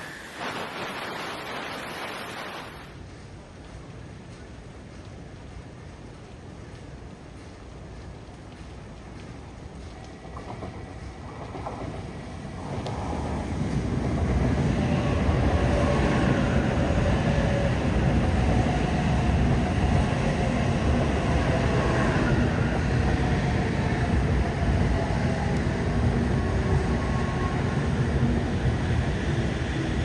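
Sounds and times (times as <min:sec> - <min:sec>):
train rumbling on rails: 0:00.0 - 0:30.0.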